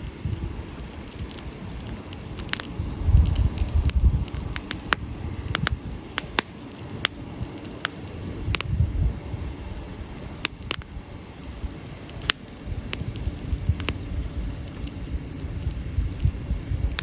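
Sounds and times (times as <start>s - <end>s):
wood campfire crackling: 0.0s - 17.0s.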